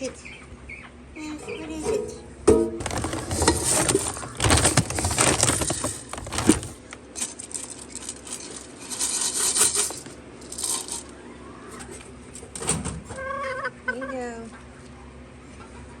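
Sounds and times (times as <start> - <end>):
small objects clattering and clinking: 2.8 - 11.1.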